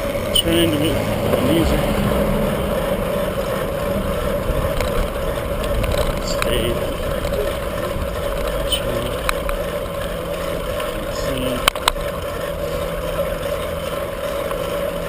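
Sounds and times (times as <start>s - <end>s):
bicycle road rumble: 0.0s - 15.0s
wind noise: 1.0s - 9.4s.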